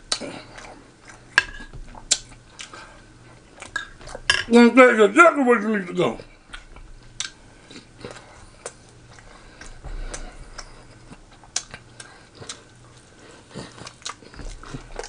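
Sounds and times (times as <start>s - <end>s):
man chewing food: 0.0s - 4.3s, 6.2s - 15.0s
wet mouth clicks and smacks: 2.1s - 2.8s.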